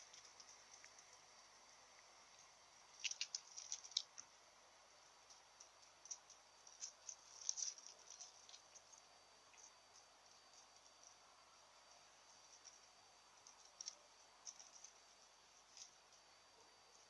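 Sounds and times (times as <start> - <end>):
claws scratching on bark: 2.3 - 4.3, 5.3 - 9.8.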